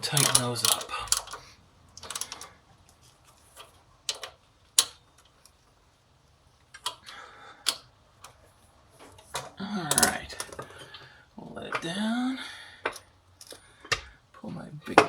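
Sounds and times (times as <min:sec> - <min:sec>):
hand ratchet clicking: 0:00.0 - 0:02.6.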